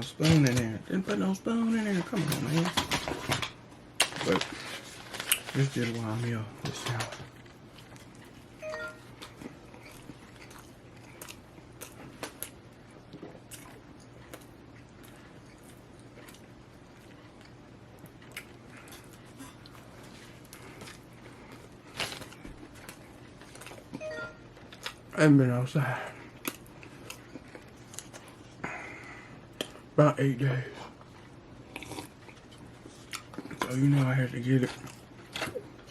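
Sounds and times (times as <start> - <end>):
low room hum: 0.0 - 35.9
person chewing food: 7.3 - 25.1, 26.1 - 30.0, 30.8 - 35.9.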